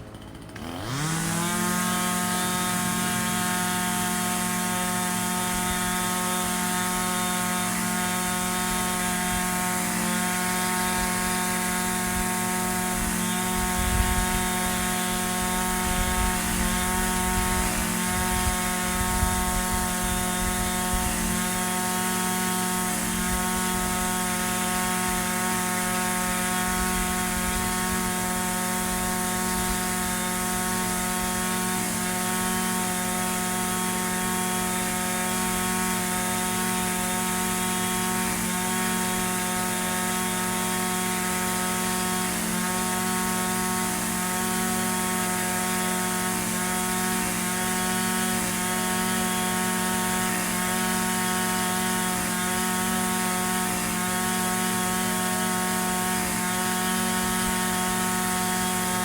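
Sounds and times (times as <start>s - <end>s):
string trimmer engine idling: 0.0s - 59.0s.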